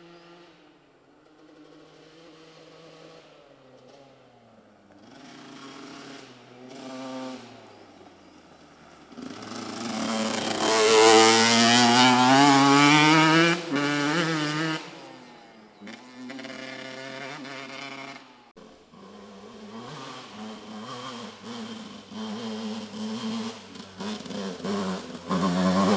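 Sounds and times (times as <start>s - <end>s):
motocross bike accelerating past: 0.0s - 4.3s, 5.0s - 25.9s.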